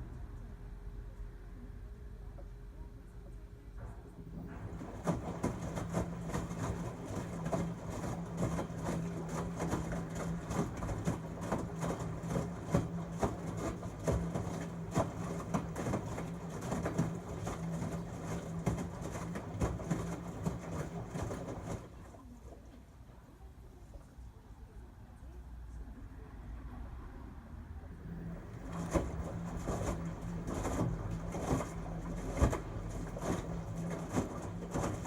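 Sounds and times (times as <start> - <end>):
washing machine motor hum: 0.0 - 24.1, 27.8 - 35.0
water sloshing in drum: 4.2 - 23.1, 28.1 - 35.0
laundry thudding in drum: 4.4 - 21.9, 28.2 - 35.0.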